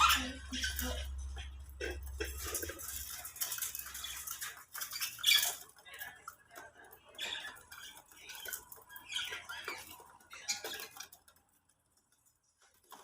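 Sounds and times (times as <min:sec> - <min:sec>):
budgerigars chirping: 0:01.9 - 0:11.2.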